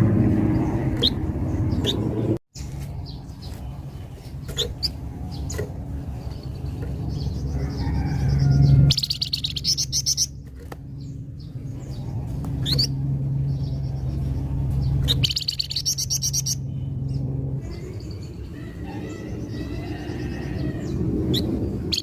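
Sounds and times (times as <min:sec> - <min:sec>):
steady low hum: 0:00.0 - 0:22.0
soft bird chirps: 0:00.6 - 0:17.0
songbird chattering trills: 0:03.1 - 0:10.4, 0:11.5 - 0:16.8.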